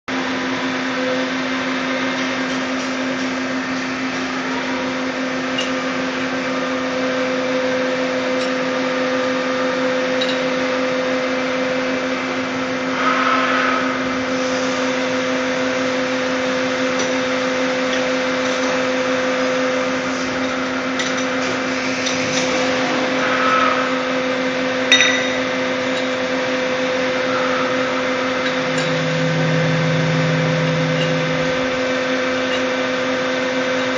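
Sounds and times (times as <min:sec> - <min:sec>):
lathe humming: 0:16.7 - 0:33.9.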